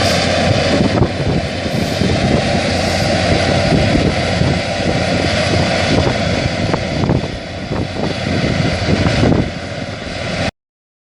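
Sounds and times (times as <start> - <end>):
combine harvester engine drone: 0.0 - 10.5.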